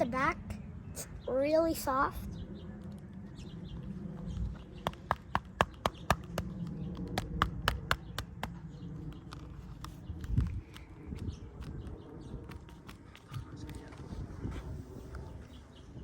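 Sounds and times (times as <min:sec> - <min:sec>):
helmet taps and clicks: 0:04.8 - 0:13.4.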